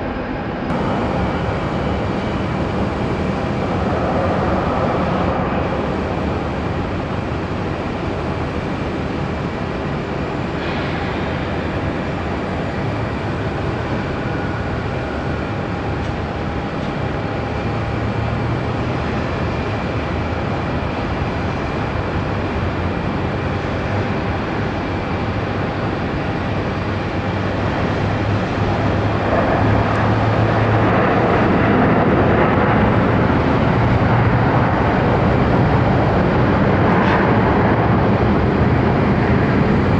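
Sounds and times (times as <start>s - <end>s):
low hum: 0.0s - 19.6s
jet engine rushing: 0.0s - 39.9s.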